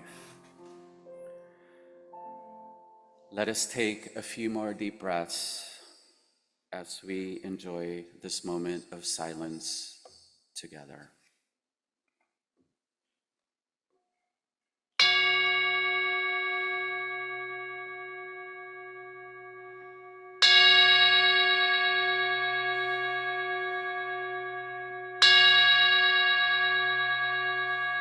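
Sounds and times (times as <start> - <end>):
struck bell ringing: 15.0 - 28.0.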